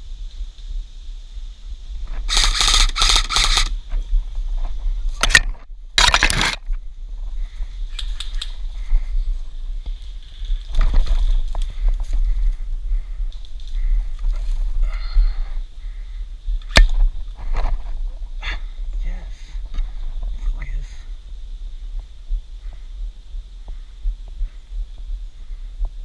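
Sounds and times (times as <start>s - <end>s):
steady low rumble: 0.0s - 26.0s
rustling and scraping of gear: 2.1s - 15.6s, 16.6s - 18.4s.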